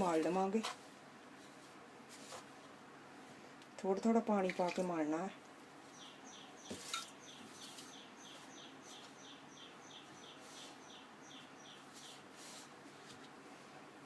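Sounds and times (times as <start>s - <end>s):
faint bird chirping: 5.8s - 12.7s.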